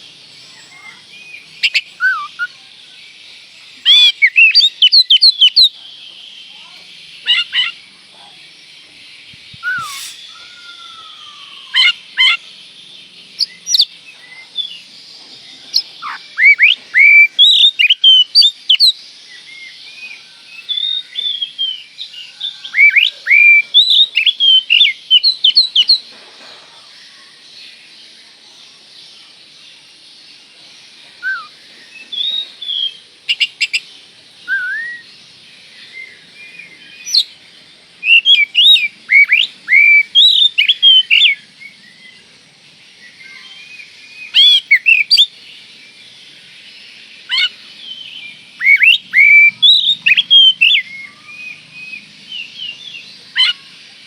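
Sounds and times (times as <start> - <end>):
bird singing whistled notes: 0.0 - 26.1, 30.8 - 54.0
steady high hiss: 0.0 - 54.0.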